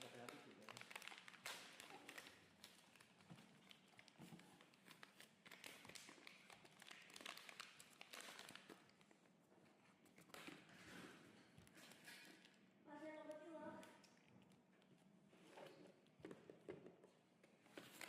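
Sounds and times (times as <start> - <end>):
packaging crinkling and tapping: 0.0 - 9.2.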